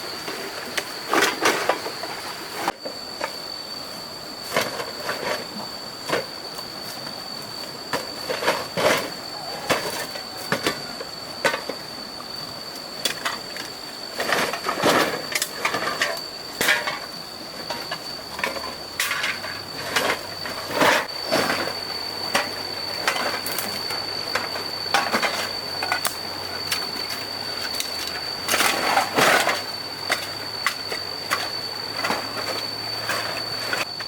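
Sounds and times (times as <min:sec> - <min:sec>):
hard objects clattering and scraping: 0:13.1 - 0:33.9.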